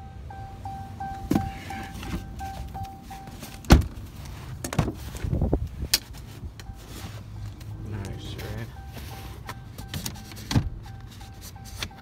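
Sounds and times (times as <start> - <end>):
vehicle warning chime beeping: 0.0 - 3.8, 6.4 - 12.0.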